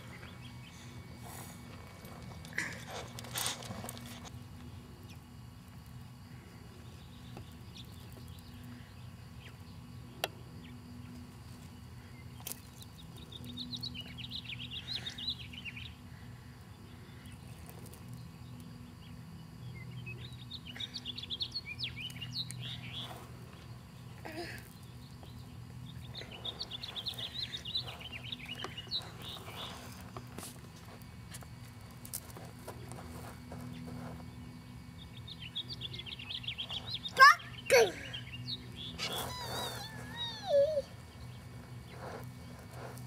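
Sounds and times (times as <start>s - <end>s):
steady low hum: 0.0s - 43.0s
birds chirping: 12.0s - 17.6s, 18.2s - 30.2s, 33.7s - 42.6s.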